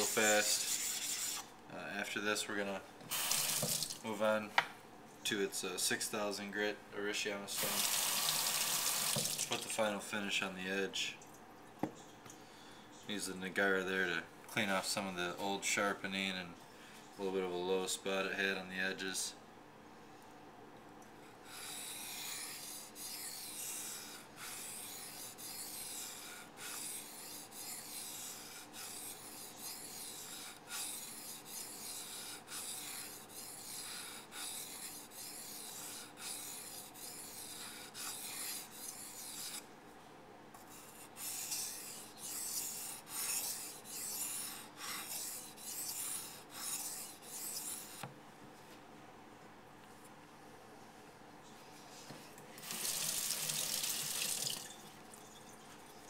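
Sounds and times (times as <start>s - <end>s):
rubbing strokes on wet whetstone: 0.0s - 1.5s, 21.5s - 39.6s, 40.6s - 48.0s.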